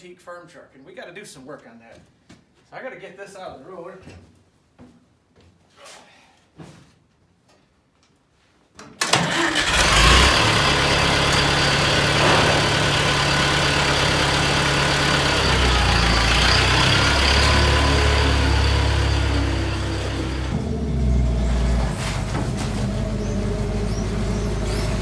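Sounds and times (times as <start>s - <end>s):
vehicle engine starting and idling: 9.0s - 25.0s.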